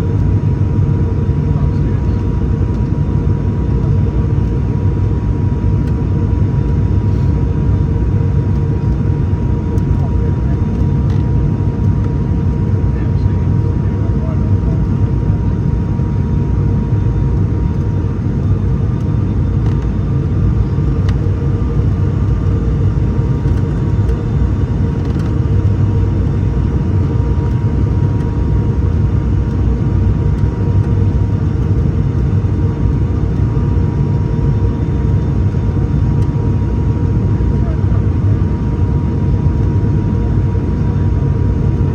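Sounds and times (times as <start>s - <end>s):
turboprop cabin drone: 0.0s - 41.9s.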